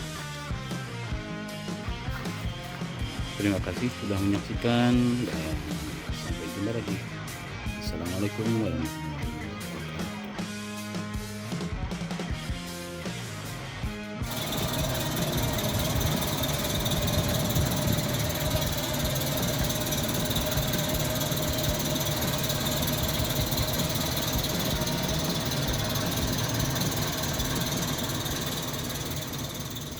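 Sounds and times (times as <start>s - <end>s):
car engine idling: 14.3s - 29.9s.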